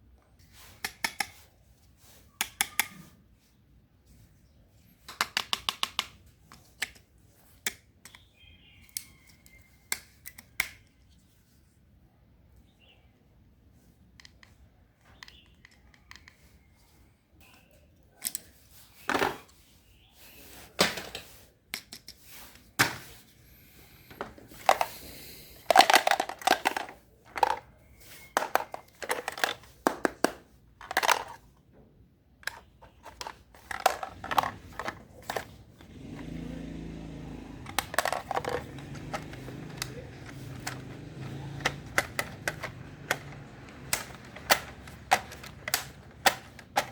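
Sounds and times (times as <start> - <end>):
objects rummaged through: 22.8 - 29.8, 30.8 - 31.4, 32.4 - 46.9.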